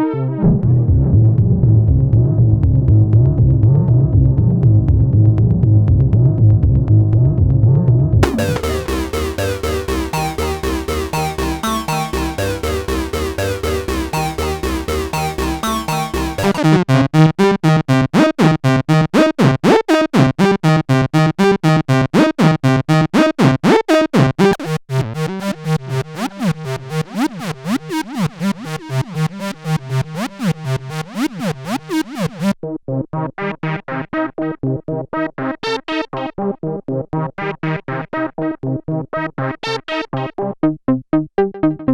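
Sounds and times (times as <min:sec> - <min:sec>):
synth playing fast note sequence: 0:08.2 - 0:32.6.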